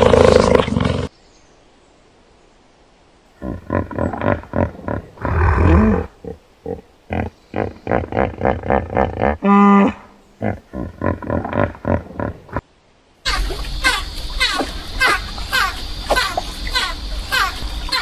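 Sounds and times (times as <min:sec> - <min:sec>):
longer louder animal call: 0:03.4 - 0:12.4.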